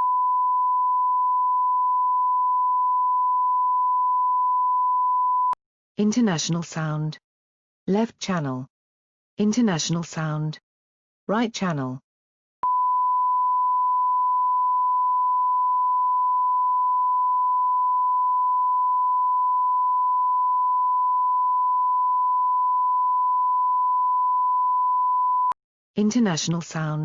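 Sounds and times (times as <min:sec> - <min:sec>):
sine-wave line-up tone: 0:00.0 - 0:05.6, 0:12.6 - 0:25.6.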